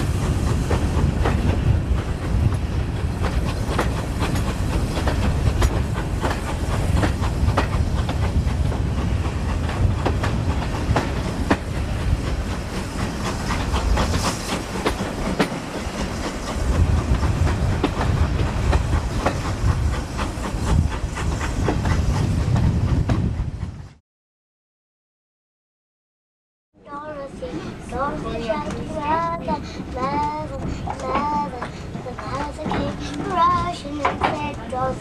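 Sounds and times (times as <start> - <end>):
train wheels clicking over rail joints: 0.0 - 23.9, 27.4 - 35.0
low train rumble: 0.0 - 24.0, 26.8 - 35.0.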